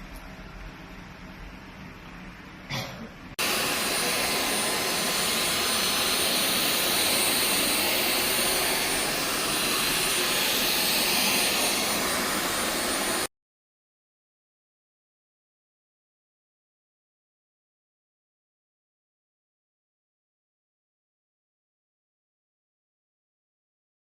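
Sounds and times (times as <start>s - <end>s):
stick vacuum running: 3.4s - 13.3s.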